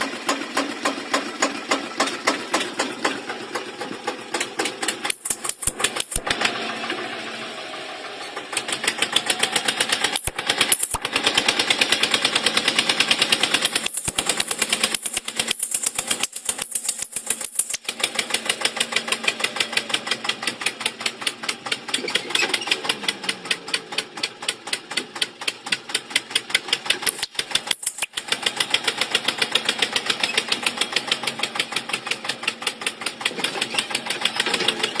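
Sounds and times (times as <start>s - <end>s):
tractor engine knocking: 0.0s - 35.0s.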